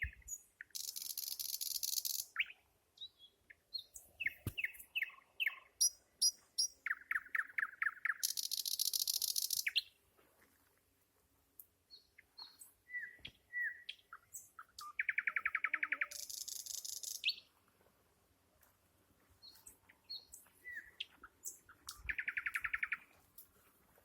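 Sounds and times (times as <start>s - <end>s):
nightingale singing: 0.0s - 10.0s, 11.9s - 17.5s, 19.4s - 23.1s.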